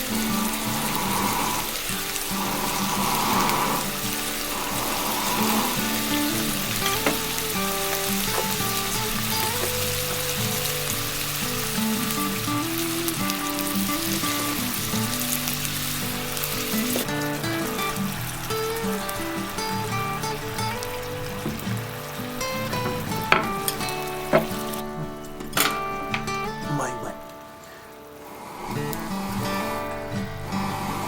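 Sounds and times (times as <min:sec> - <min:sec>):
food sizzling in hot fat: 0:00.0 - 0:31.0
soft background music: 0:00.0 - 0:31.0.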